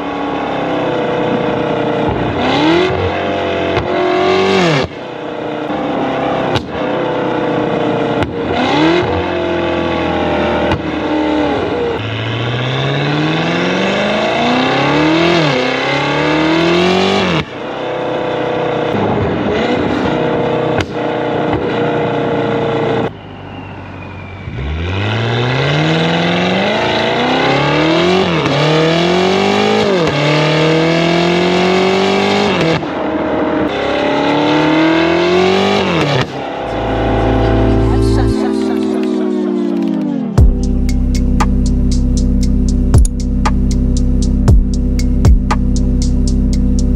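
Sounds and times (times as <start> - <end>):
car engine accelerating through gears: 0.0 - 46.9.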